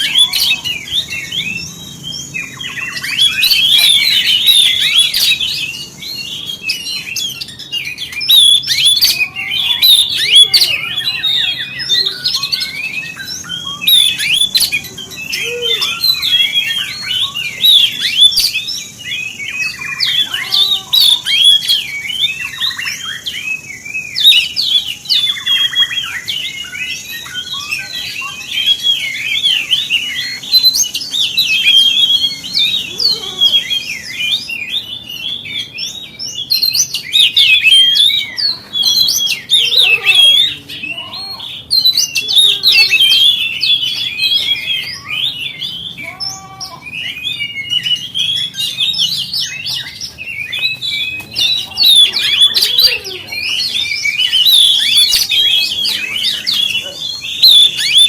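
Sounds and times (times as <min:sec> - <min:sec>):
bird singing chirps and whistles: 0:00.0 - 0:58.0.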